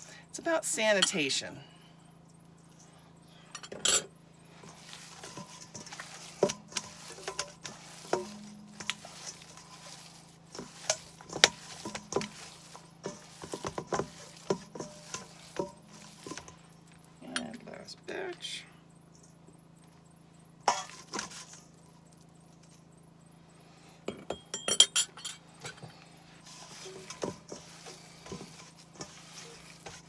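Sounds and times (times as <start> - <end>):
steady low hum: 0.0 - 30.0
hands squishing raw meat: 4.7 - 17.0, 26.5 - 30.0.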